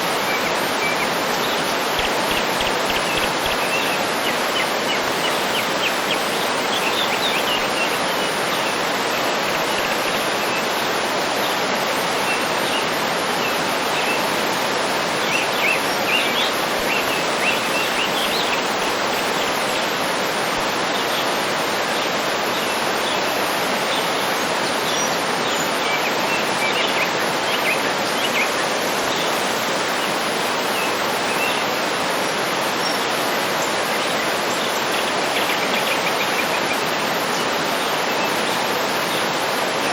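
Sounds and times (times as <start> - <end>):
waterfall running: 0.0 - 39.9
small birds chirping: 0.3 - 10.8, 15.3 - 19.9.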